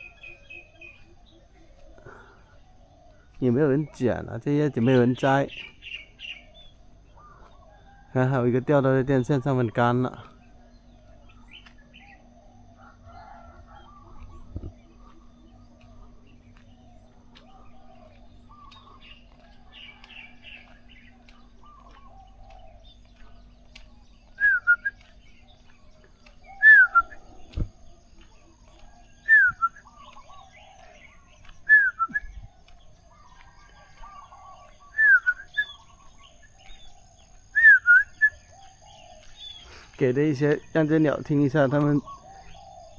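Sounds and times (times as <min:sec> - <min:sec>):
birds chirping faintly: 0:00.0 - 0:42.9.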